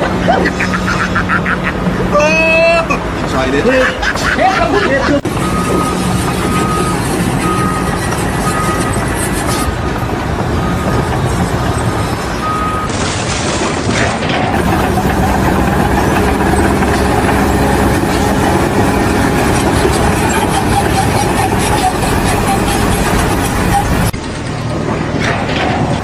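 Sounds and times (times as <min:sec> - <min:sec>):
heavy vehicle engines running: 0:00.0 - 0:26.0
reversing alarm beeping: 0:05.2 - 0:09.8, 0:14.5 - 0:24.1.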